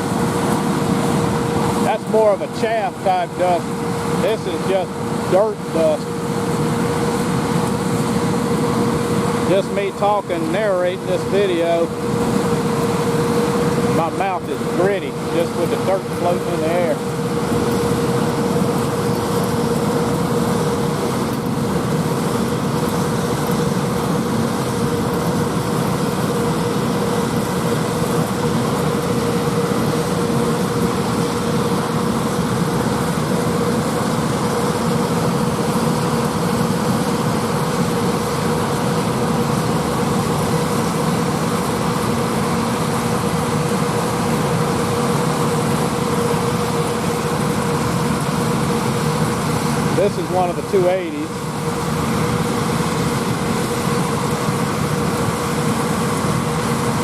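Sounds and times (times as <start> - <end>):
farm machinery running: 0.0 - 57.0
steady pitched hum: 0.0 - 57.0.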